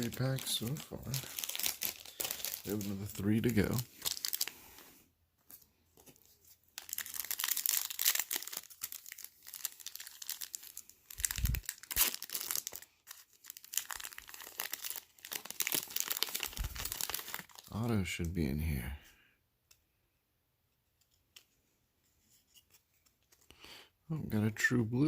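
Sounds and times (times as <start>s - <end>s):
plastic wrapper crinkling and tearing: 0.0s - 4.9s, 5.5s - 17.9s.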